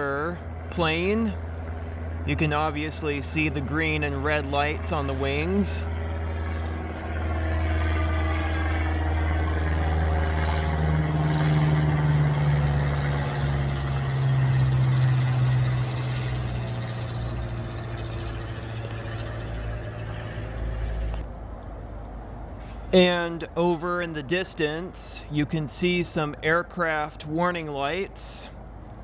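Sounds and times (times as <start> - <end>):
airplane engine drone: 0.0 - 29.0.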